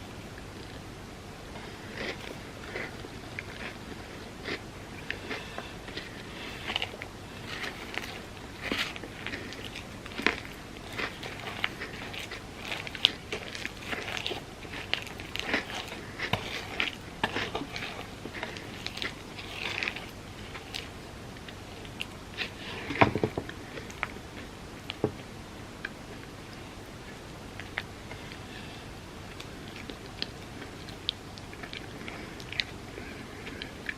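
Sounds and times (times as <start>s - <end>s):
wet chewing: 1.5s - 25.1s, 25.8s - 33.9s
crunching bites: 1.9s - 24.2s.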